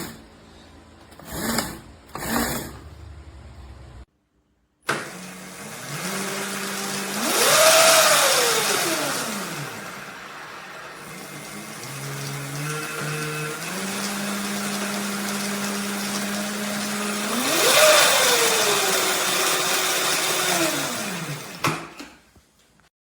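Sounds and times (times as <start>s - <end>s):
electric motor whining: 5.1s - 21.6s.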